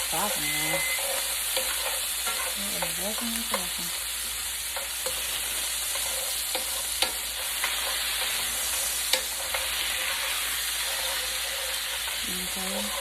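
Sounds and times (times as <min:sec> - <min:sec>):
onion sizzling in a frying pan: 0:00.0 - 0:13.0
utensil clicking against pan: 0:04.7 - 0:10.2.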